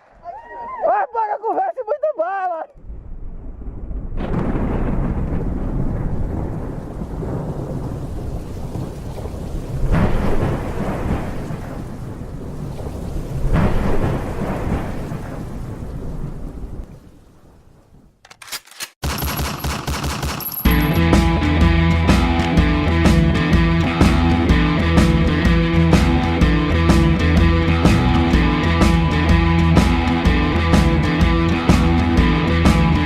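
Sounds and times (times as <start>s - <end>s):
rolling thunder: 2.8s - 18.2s
steady rain: 2.8s - 18.2s
crackling clicks: 18.2s - 20.8s, 22.3s - 22.6s.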